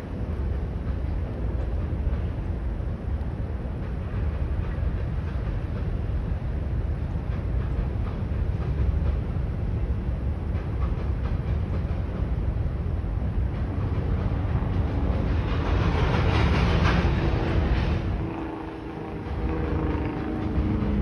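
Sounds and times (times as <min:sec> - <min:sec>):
freight train rumbling past: 0:00.0 - 0:21.0
wheels clattering over rails: 0:13.3 - 0:21.0.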